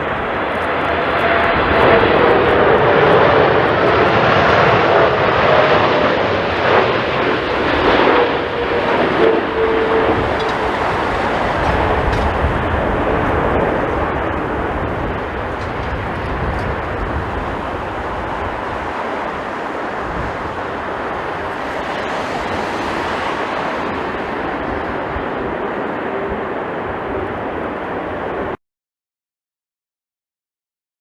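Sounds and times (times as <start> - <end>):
jet engines rumbling: 0.0 - 28.6
wind buffeting microphone: 0.0 - 28.6.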